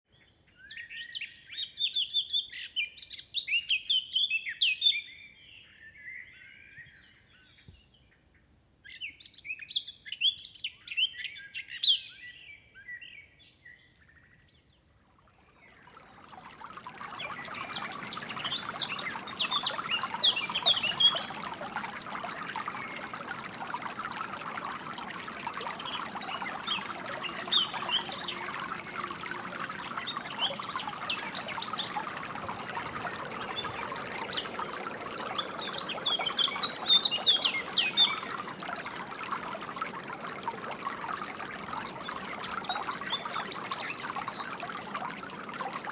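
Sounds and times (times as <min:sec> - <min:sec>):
songbirds chirping and trilling: 0:09.0 - 0:45.9
flowing water: 0:15.1 - 0:45.9.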